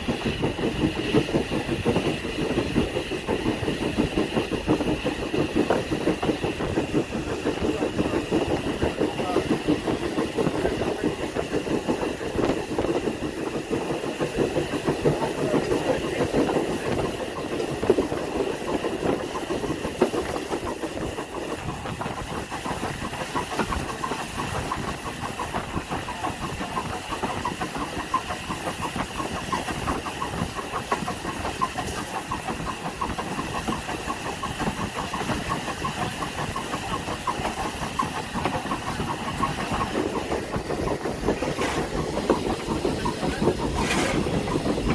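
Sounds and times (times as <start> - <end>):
train engine running: 0.0 - 44.9
wheels rattling on rails: 0.0 - 44.9.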